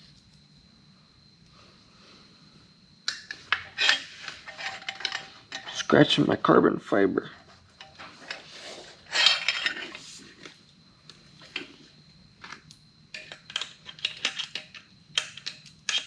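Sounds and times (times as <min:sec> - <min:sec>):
metal exhaust parts clinking: 0:03.1 - 0:06.0, 0:07.6 - 0:10.1, 0:13.1 - 0:16.0.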